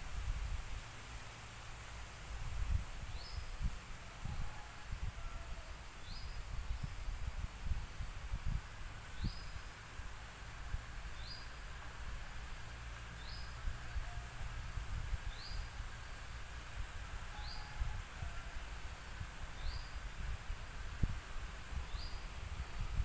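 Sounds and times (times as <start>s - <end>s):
wind rumble on microphone: 0.0s - 23.0s.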